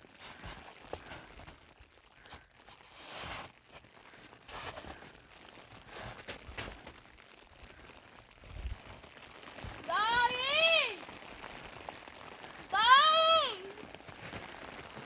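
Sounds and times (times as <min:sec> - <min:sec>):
footsteps crunching in snow: 0:00.0 - 0:07.0, 0:14.0 - 0:15.0.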